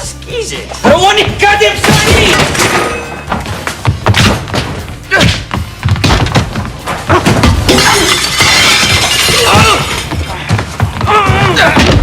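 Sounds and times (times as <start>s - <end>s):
thuds of blows and bodies: 3.4s - 7.8s
crashing clatter: 6.3s - 10.1s
men shouting and grunting: 9.2s - 12.0s.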